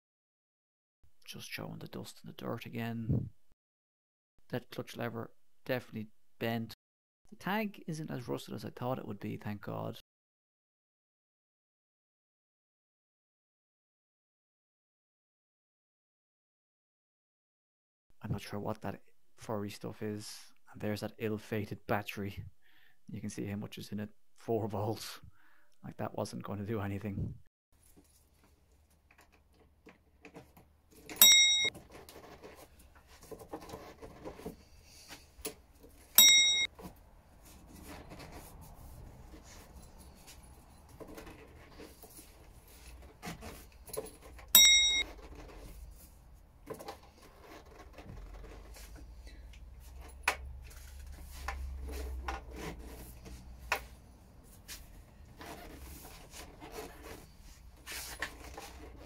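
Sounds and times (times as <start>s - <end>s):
rustling handling noise: 27.8s - 59.0s
loud clear chime: 31.2s - 31.7s, 36.2s - 36.7s, 44.6s - 45.0s.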